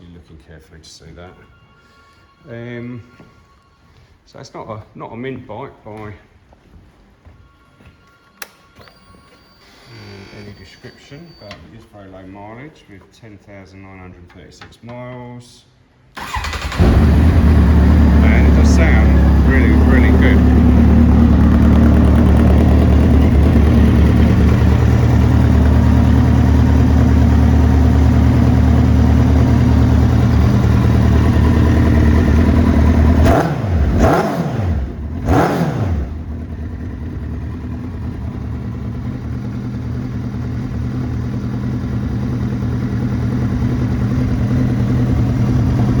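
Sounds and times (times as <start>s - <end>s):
motorcycle engine idling and revving: 16.2s - 46.0s.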